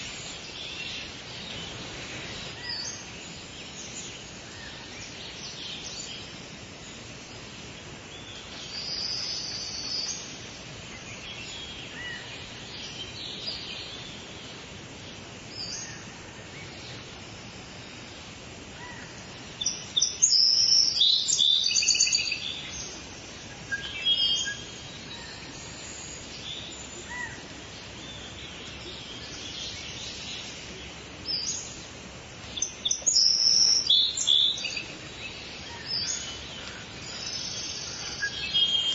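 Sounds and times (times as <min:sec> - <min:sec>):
songbirds singing and chirping: 0:00.0 - 0:38.9
steady background hiss: 0:00.0 - 0:38.9.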